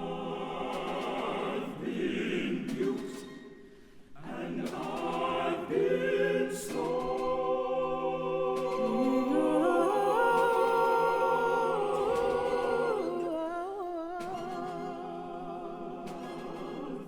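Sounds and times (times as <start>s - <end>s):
wordless choir singing: 0.0s - 17.0s
voice singing with wide vibrato: 4.2s - 17.0s.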